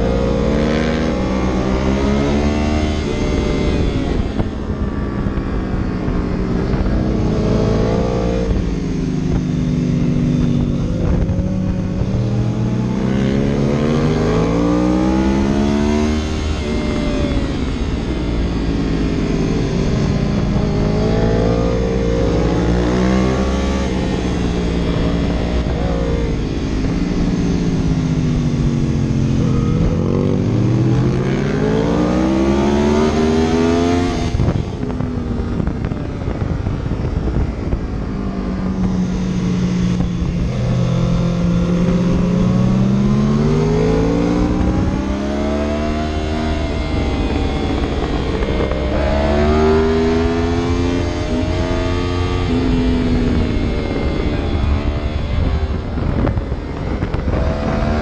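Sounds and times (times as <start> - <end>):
vehicle engine revving: 0.0 - 58.0.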